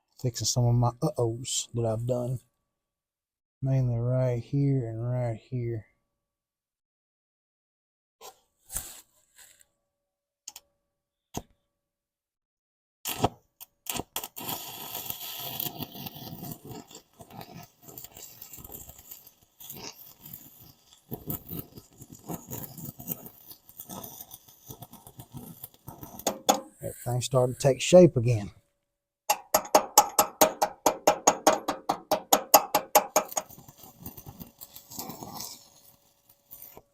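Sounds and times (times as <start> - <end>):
arc welding crackling: 13.9 - 27.7, 29.6 - 36.8.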